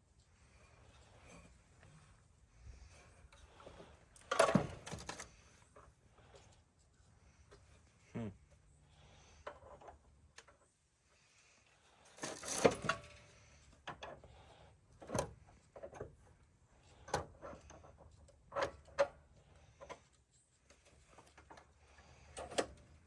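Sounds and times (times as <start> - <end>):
tools and metal parts clanking: 2.8 - 6.5, 12.0 - 14.3.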